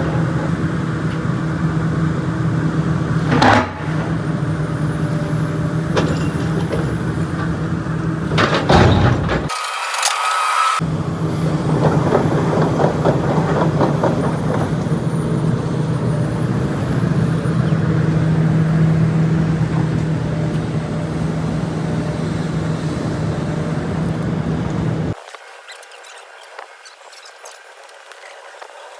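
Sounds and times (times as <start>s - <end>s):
vehicle engine humming: 0.0s - 9.5s, 10.3s - 25.2s.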